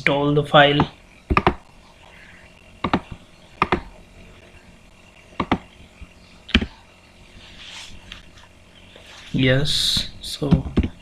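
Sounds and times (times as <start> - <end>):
keyboard keys clicking: 5.4 - 5.6.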